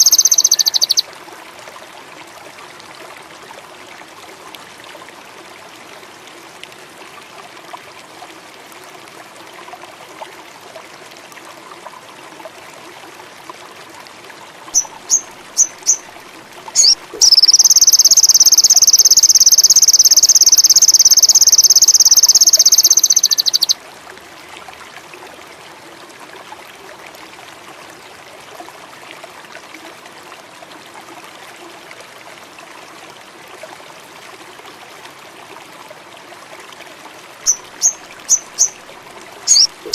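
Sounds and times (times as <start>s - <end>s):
bird chips and rapid trill: 0.0s - 1.0s, 14.8s - 16.0s, 16.8s - 23.8s, 37.5s - 38.8s, 39.5s - 39.9s
running water: 0.0s - 39.9s.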